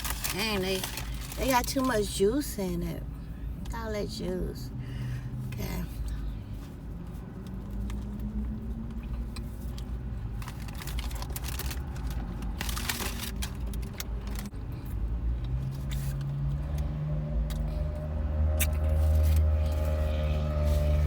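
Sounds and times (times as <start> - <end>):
paper wrapper rustling: 0.0 - 2.1, 10.4 - 14.5.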